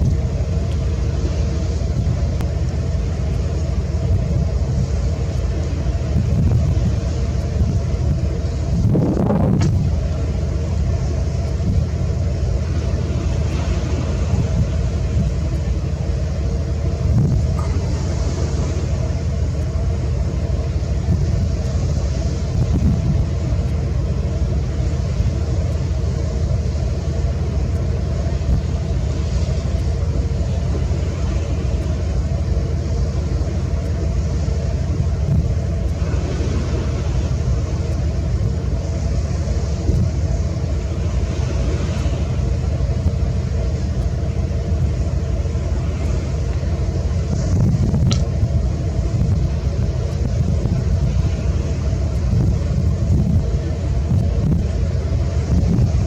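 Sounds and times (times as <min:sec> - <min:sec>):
faint even hum: 0:00.0 - 0:56.0
ship engine rumble: 0:00.0 - 0:56.0
wind noise on microphone: 0:06.0 - 0:10.0, 0:11.6 - 0:12.1, 0:13.6 - 0:15.6, 0:17.0 - 0:18.6, 0:21.0 - 0:23.7, 0:34.9 - 0:36.1, 0:39.6 - 0:40.3, 0:47.1 - 0:56.0.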